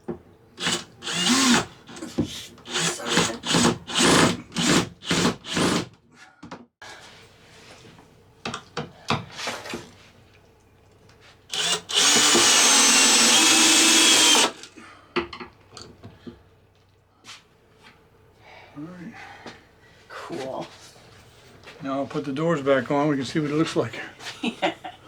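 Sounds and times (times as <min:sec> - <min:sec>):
power drill driving screws: 0:00.6 - 0:05.9, 0:11.5 - 0:14.7.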